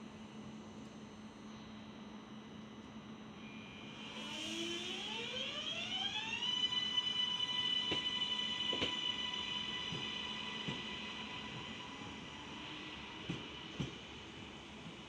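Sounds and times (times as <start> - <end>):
electric train motor whining: 3.9 - 14.0.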